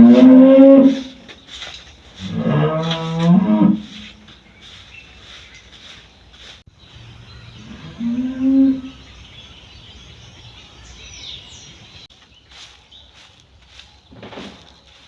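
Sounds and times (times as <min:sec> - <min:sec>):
cow mooing: 0:00.0 - 0:01.2, 0:02.2 - 0:04.0, 0:07.6 - 0:09.0
outdoor background noise: 0:00.0 - 0:15.0
bird chirping: 0:03.8 - 0:15.0.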